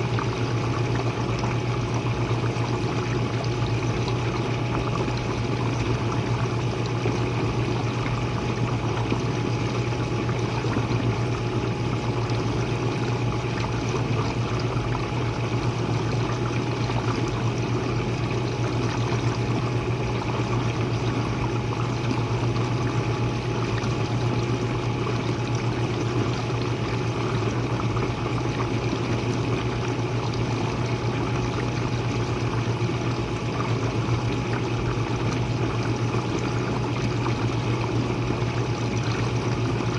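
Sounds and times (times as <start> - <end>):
dishwasher motor hum: 0.0 - 39.9
spraying sloshing water: 0.0 - 39.9.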